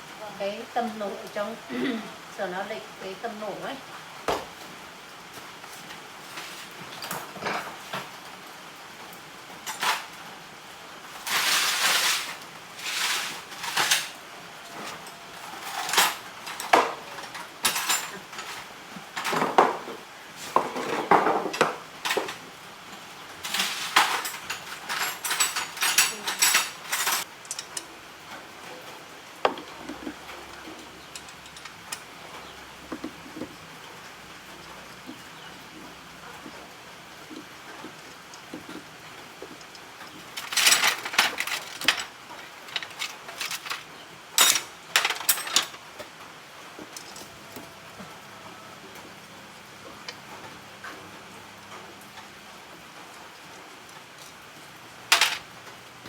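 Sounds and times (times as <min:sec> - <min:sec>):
metal hand tools clinking: 0:15.6 - 0:18.6, 0:23.4 - 0:27.9, 0:31.0 - 0:32.1, 0:40.3 - 0:45.8, 0:55.1 - 0:55.4.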